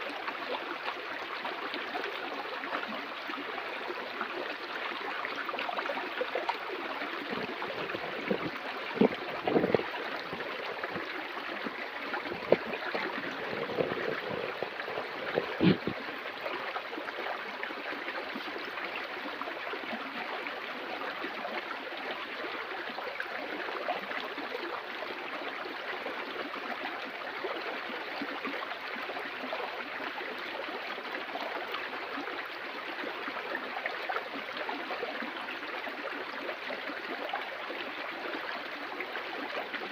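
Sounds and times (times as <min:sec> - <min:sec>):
water splashes: 0:00.0 - 0:20.8
stream water rushing: 0:00.0 - 0:39.9.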